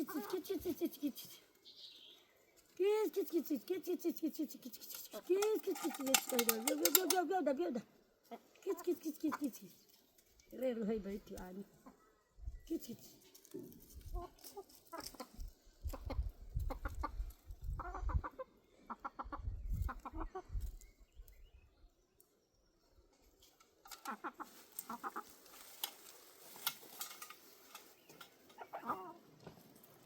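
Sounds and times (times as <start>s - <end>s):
chickens clucking: 0.0s - 1.4s, 8.3s - 9.7s, 11.7s - 12.1s, 14.0s - 20.8s, 23.8s - 25.6s, 26.8s - 29.5s.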